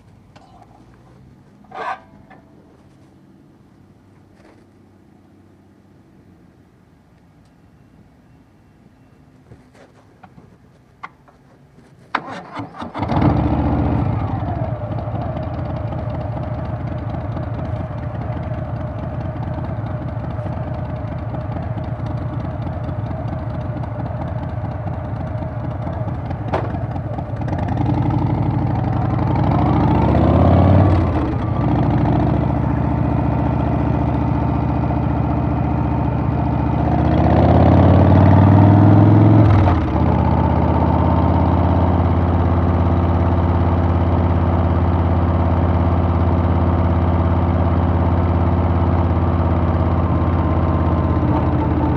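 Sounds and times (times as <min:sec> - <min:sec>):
motorcycle engine running: 0:12.8 - 0:51.9.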